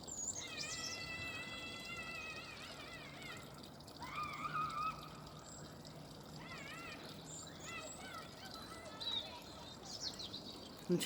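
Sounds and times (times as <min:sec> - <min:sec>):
children shrieking in distance: 0:00.4 - 0:05.4, 0:06.2 - 0:09.8
river water flowing: 0:03.6 - 0:11.0.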